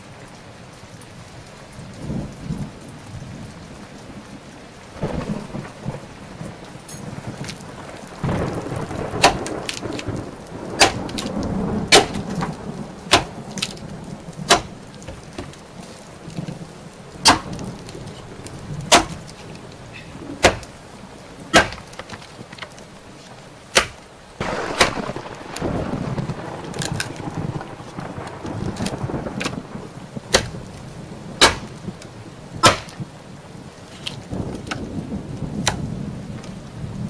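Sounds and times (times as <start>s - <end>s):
small fire crackling: 0.0s - 37.0s
low rush of fire: 4.9s - 37.0s
sharp pops: 9.2s - 10.1s, 10.8s - 13.8s, 14.5s - 15.6s, 17.2s - 17.7s, 18.9s - 19.4s, 20.4s - 20.8s, 21.5s - 22.3s, 23.7s - 25.7s, 30.3s - 30.6s, 31.4s - 33.1s.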